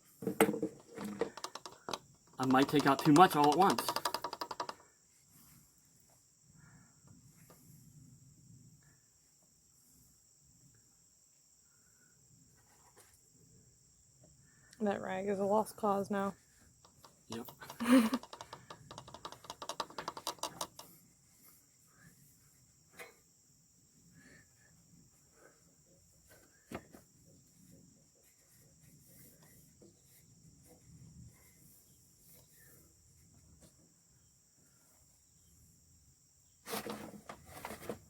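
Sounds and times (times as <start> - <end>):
insect drone: 0.1 - 38.0
hands clicking and knocking: 0.8 - 4.8, 16.9 - 20.9
rustling: 36.6 - 38.0.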